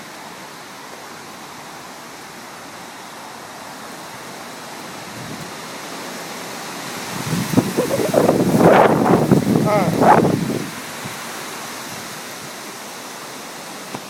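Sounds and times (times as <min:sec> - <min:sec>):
wind blowing hard: 0:04.9 - 0:05.7, 0:06.8 - 0:12.6.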